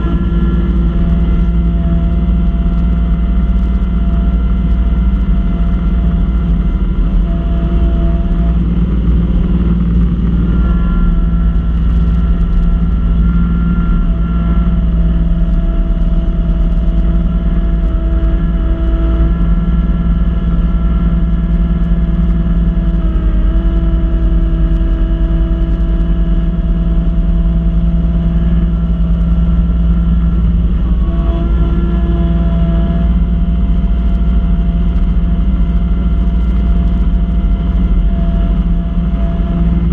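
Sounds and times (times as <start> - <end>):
diesel tractor engine running: 0.0 - 39.9
snow blower whine: 0.0 - 39.9.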